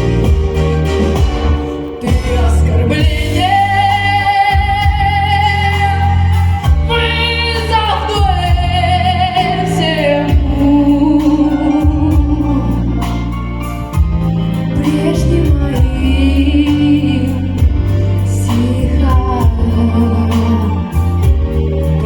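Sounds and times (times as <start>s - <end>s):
instrumental backing track: 0.0s - 22.0s.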